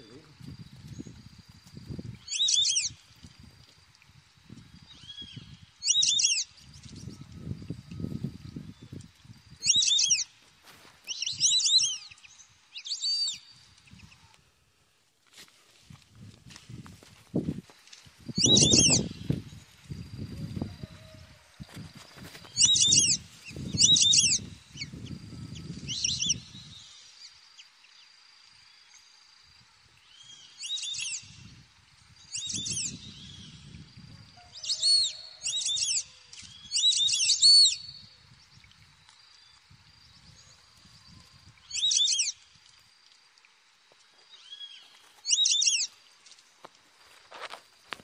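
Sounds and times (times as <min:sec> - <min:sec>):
faint high-pitched insect tone: 0:00.0 - 0:48.0
low wind rumble on microphone: 0:00.2 - 0:02.3, 0:02.9 - 0:05.8, 0:06.6 - 0:09.8, 0:15.8 - 0:26.8, 0:31.2 - 0:34.6, 0:37.8 - 0:39.0
bird chirping: 0:02.3 - 0:02.9, 0:04.9 - 0:07.3, 0:08.8 - 0:10.2, 0:18.4 - 0:19.4, 0:22.5 - 0:26.7, 0:41.1 - 0:42.3, 0:44.3 - 0:45.9.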